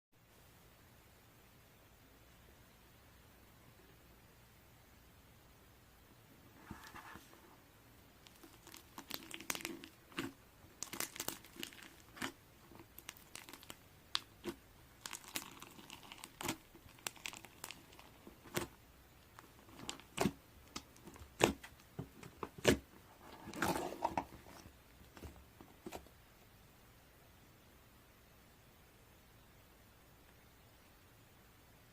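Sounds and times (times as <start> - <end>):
crinkling and crackling: 8.2 - 26.2.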